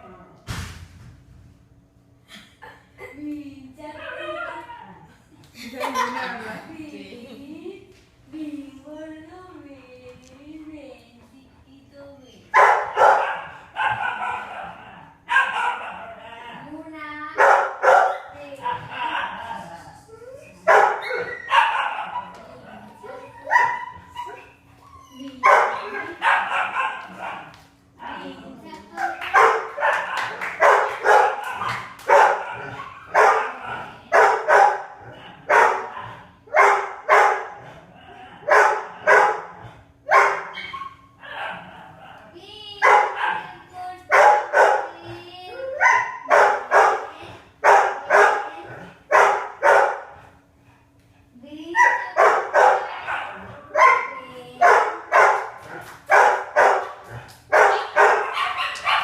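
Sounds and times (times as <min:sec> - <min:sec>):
dogs barking: 0:12.5 - 0:16.6, 0:17.4 - 0:19.6, 0:20.6 - 0:24.7, 0:25.3 - 0:28.2, 0:28.9 - 0:50.6, 0:51.2 - 0:59.0.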